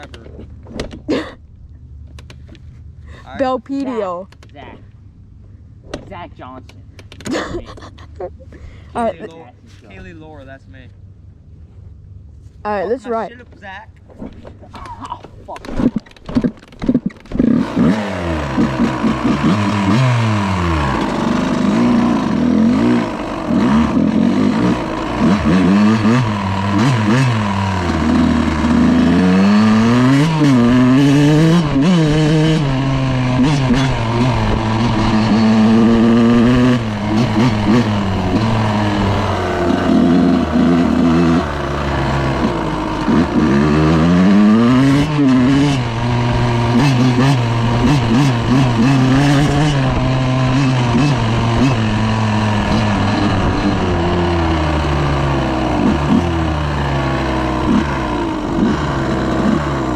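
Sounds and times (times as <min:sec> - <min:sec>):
dirt bike engine revving: 0:15.8 - 0:59.9.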